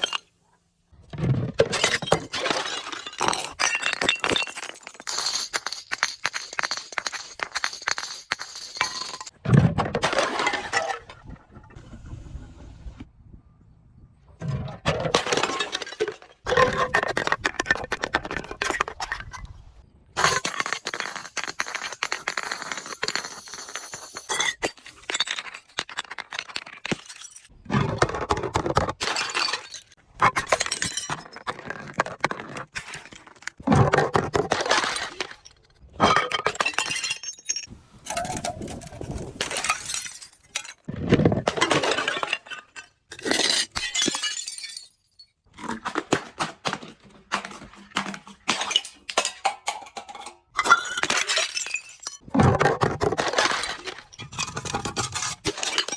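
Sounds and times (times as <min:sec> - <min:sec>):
glass crunching and breaking: 0:01.6 - 0:09.4, 0:20.2 - 0:55.9.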